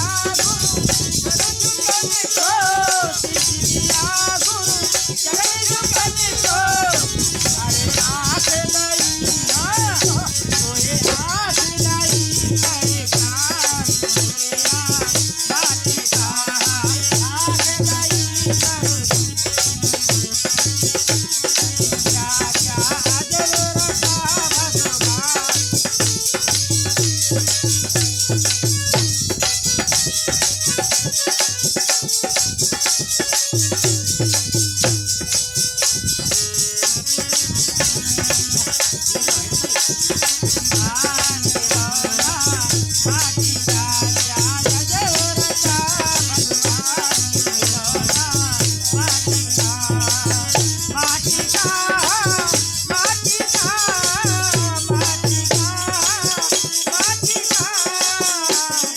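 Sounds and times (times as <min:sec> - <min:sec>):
person singing: 0:00.0 - 0:27.6, 0:37.2 - 0:58.9
rattling hand percussion: 0:00.0 - 0:58.9.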